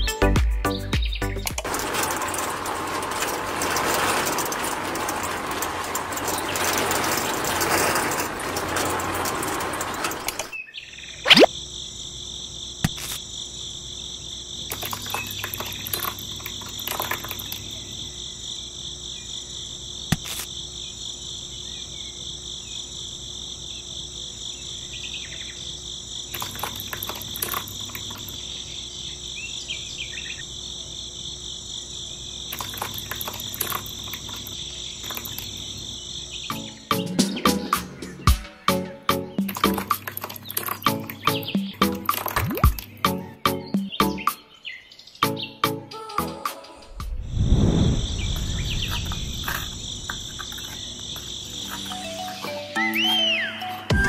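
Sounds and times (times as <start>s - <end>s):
small knocks and scrapes: 1.6s - 10.6s, 26.4s - 28.4s, 32.5s - 35.7s, 48.3s - 52.6s
toy concrete mixer churning: 1.6s - 10.6s, 14.7s - 18.0s, 26.3s - 28.4s, 32.5s - 35.9s, 39.4s - 43.0s, 48.8s - 52.6s
crickets chirping: 1.6s - 37.4s, 38.5s - 54.0s
sharp rising swish: 46.9s - 49.4s.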